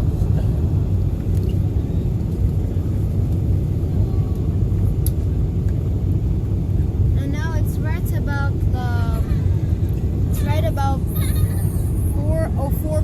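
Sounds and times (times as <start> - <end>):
airliner engine rumble: 0.0 - 13.0.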